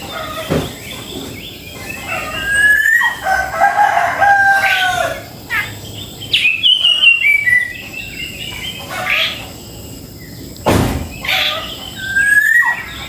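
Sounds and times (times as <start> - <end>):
bird whistling and chirping: 0.0 - 3.2, 6.2 - 9.4, 11.2 - 13.0
sharp knock: 10.7 - 11.1.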